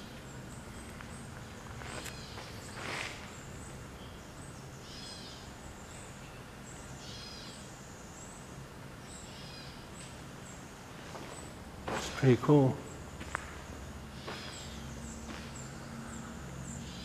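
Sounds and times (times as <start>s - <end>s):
low steady hum: 0.0s - 17.0s
bird calling: 0.8s - 6.1s, 6.8s - 7.8s, 10.9s - 17.0s.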